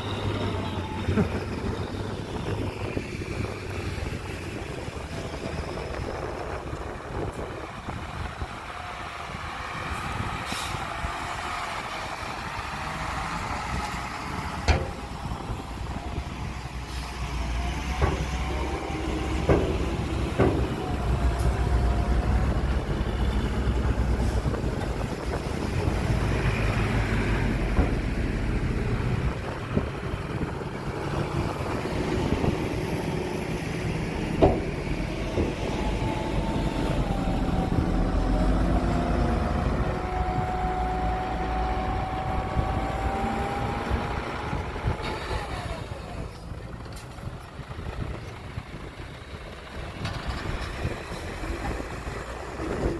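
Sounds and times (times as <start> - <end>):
heavy diesel machinery rumbling: 0.0 - 52.9
sharp knocks: 19.3 - 21.0.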